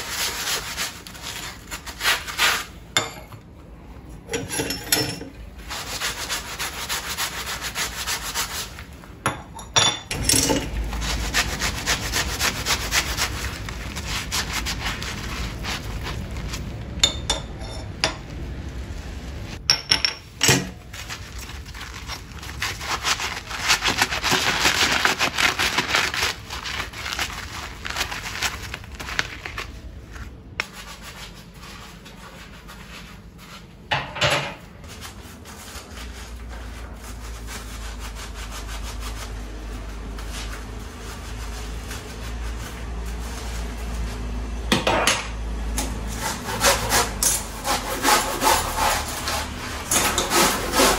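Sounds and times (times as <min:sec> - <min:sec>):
low steady hum: 0:00.0 - 0:50.9
hand scrubbing a hard surface: 0:05.6 - 0:09.0, 0:10.6 - 0:17.8, 0:20.9 - 0:33.8, 0:46.1 - 0:50.9.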